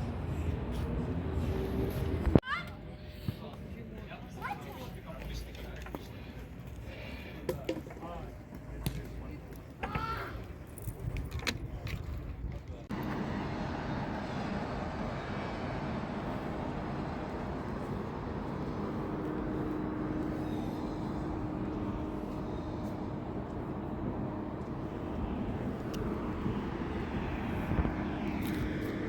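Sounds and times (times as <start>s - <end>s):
vehicle engine hum: 0.0s - 2.4s, 10.8s - 29.0s
road noise: 0.0s - 29.0s.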